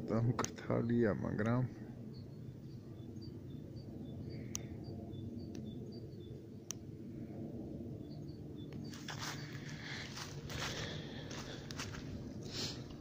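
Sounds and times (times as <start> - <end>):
low background rumble: 0.0 - 13.0
small bird chirping: 2.0 - 6.8.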